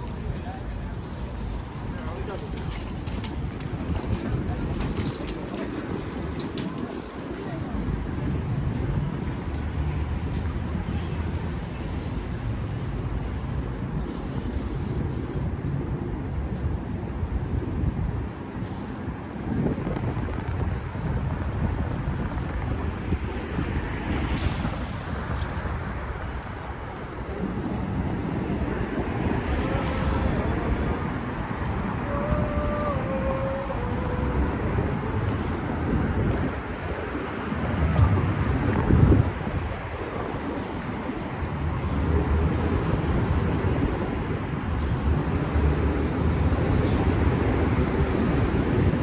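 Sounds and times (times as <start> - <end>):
gusty wind buffeting microphone: 0.0 - 49.0
passing city traffic: 0.0 - 49.0.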